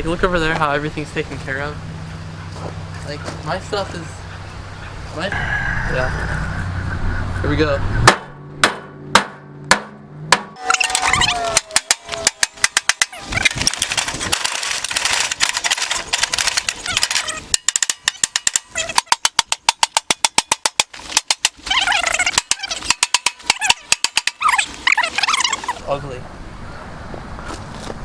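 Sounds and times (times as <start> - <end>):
hammer blows on metal panels: 8.0 - 13.3
person shouting: 10.6 - 12.6.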